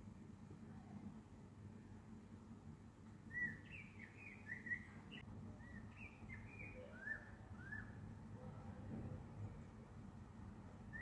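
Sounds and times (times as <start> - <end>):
bird singing whistled notes: 3.3 - 8.0.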